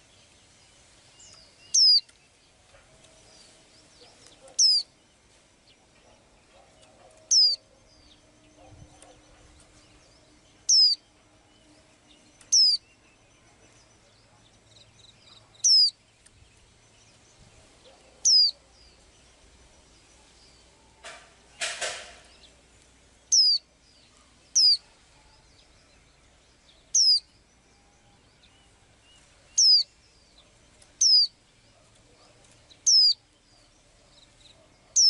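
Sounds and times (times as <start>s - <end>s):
songbird high falling call: 4.2s - 4.9s, 7.2s - 9.2s, 15.6s - 16.0s, 18.2s - 19.0s, 23.3s - 26.0s, 26.9s - 27.3s, 29.5s - 30.0s.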